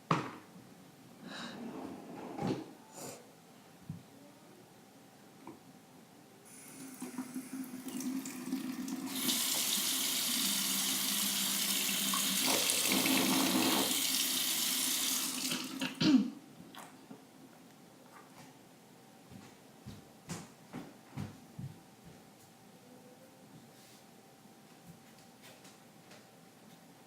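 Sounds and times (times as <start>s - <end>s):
tap running into a sink: 6.8s - 14.5s.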